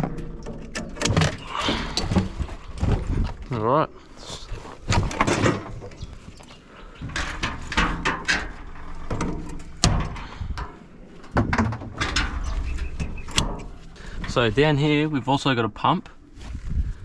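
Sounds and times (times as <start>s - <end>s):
metal parts clunking and scraping: 0.0s - 3.6s, 4.2s - 15.4s.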